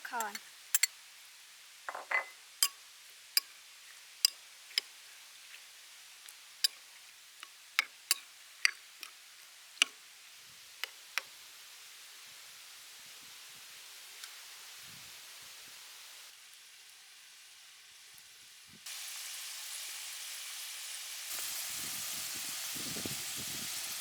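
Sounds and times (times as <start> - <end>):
utensils clicking against dishes: 0.1 - 0.9.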